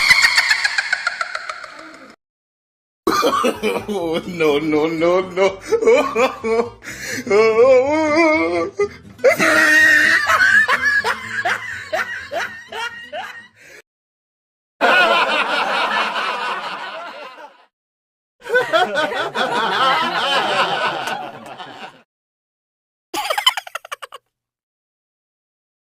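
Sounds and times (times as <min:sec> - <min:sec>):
laughing sound effects: 0:00.0 - 0:02.2, 0:09.2 - 0:13.5, 0:23.2 - 0:24.2.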